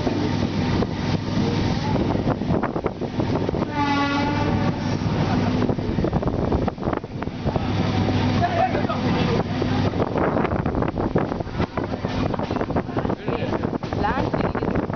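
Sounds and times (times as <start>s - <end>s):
train rumbling on tracks: 0.0s - 14.9s
train horn: 3.6s - 5.0s.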